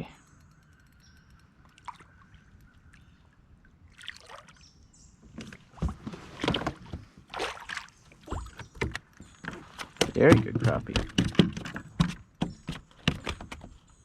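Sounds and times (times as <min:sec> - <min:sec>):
knocks on a kayak: 0:09.9 - 0:13.7.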